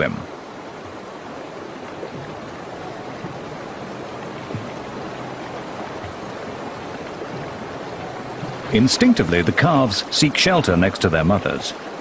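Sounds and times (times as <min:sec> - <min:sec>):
river water rushing: 0:00.0 - 0:12.0
soft low thuds: 0:00.7 - 0:09.2.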